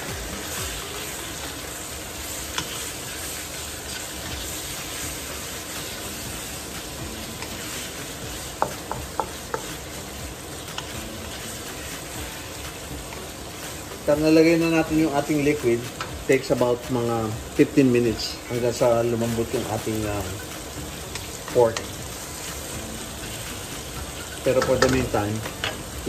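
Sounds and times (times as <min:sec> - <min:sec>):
food sizzling in a wok: 0:00.0 - 0:26.0
wooden spatula scraping wok: 0:00.4 - 0:16.9.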